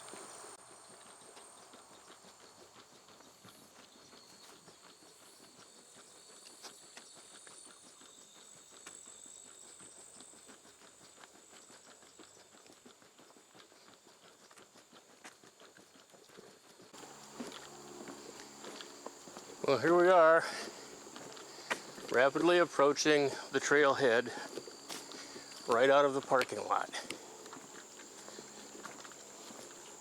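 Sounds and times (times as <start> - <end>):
quick footsteps on footpath: 0.0 - 30.0
insect trilling: 17.0 - 30.0.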